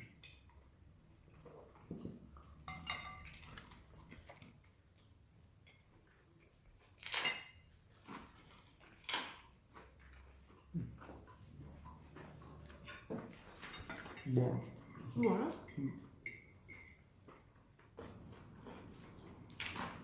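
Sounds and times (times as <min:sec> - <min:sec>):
cutlery and dishes clinking: 0:02.6 - 0:03.7, 0:07.0 - 0:08.2, 0:12.3 - 0:17.1.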